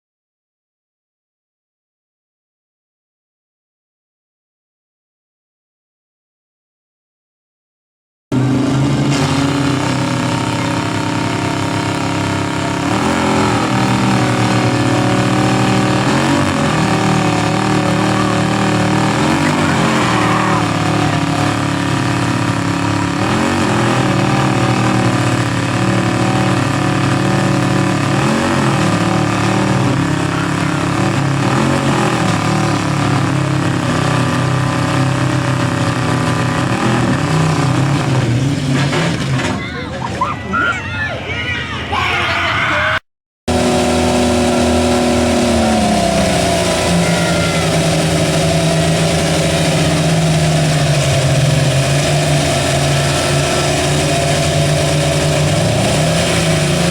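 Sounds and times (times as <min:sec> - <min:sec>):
truck engines revving: 0:08.3 - 0:56.9.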